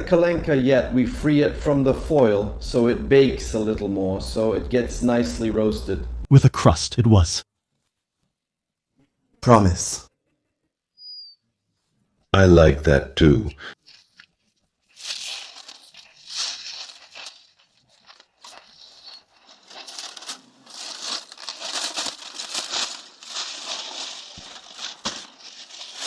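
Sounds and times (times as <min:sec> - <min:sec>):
aluminium foil crinkling and tearing: 0:13.8 - 0:26.0.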